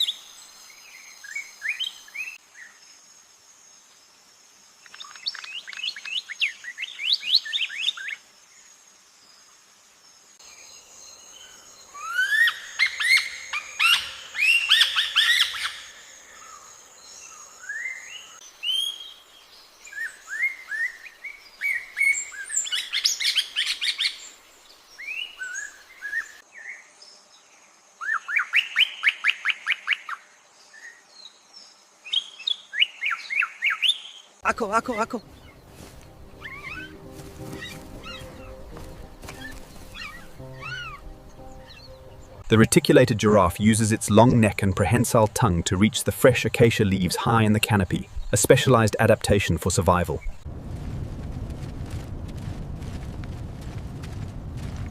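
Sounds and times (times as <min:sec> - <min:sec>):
birds chirping: 0:10.4 - 0:26.4, 0:31.9 - 0:50.5.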